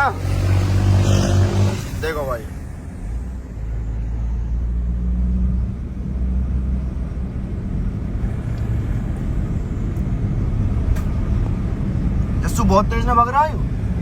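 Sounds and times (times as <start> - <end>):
road noise: 0.0 - 14.0
vehicle engine rumble: 0.0 - 14.0.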